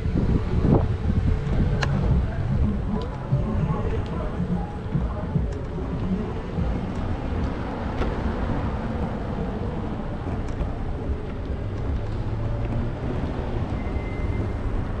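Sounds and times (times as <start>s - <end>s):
road noise: 0.0s - 15.0s
wind on microphone: 0.0s - 15.0s.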